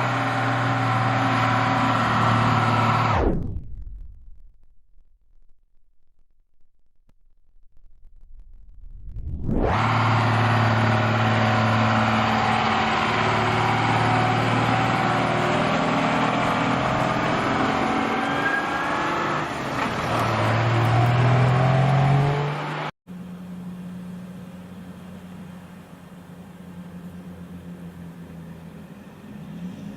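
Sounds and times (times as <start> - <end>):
truck diesel engine pulling hard: 0.0 - 3.3, 9.6 - 29.9
quiet steady engine hum: 23.1 - 29.9.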